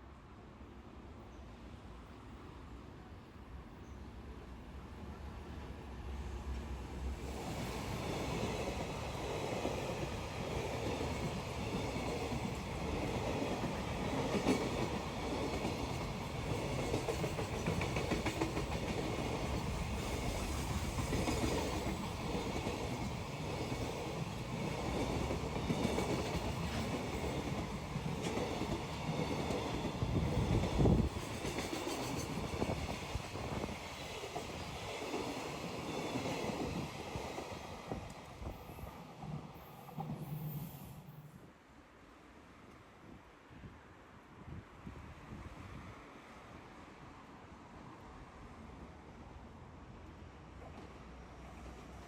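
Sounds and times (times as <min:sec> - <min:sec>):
train wheels rumbling on track: 0:06.0 - 0:41.3.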